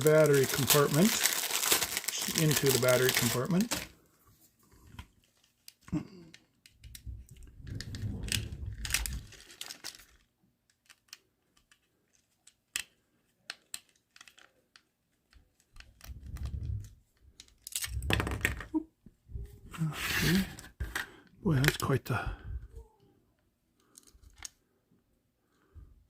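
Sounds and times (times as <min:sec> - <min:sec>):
rustling handling noise: 0:00.0 - 0:05.9, 0:06.9 - 0:17.8
small plastic clicks: 0:10.7 - 0:18.0.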